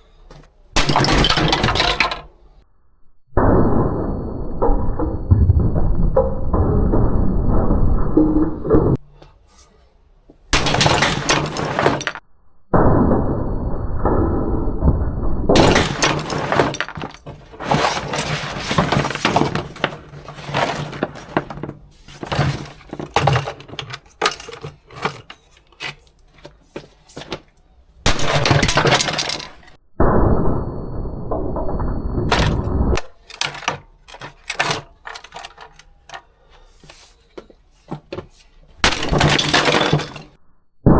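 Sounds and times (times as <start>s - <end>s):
breaking pieces clattering: 0.8s - 2.4s, 10.6s - 12.2s, 15.5s - 29.8s, 32.3s - 37.1s, 37.9s - 40.4s
hammer smashing appliances: 0.8s - 2.4s, 10.6s - 12.2s, 15.5s - 27.5s, 28.1s - 29.7s, 32.3s - 36.2s, 37.9s - 40.4s.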